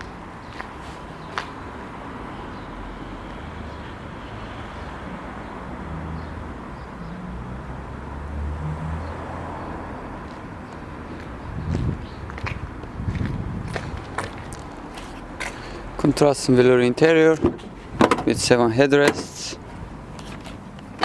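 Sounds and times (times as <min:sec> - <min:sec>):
passing vehicle engine rumble: 0:00.7 - 0:21.0.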